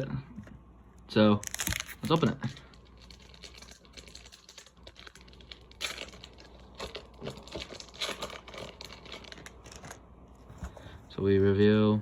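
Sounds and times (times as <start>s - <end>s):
foil wrapper crinkling and tearing: 1.4s - 10.0s.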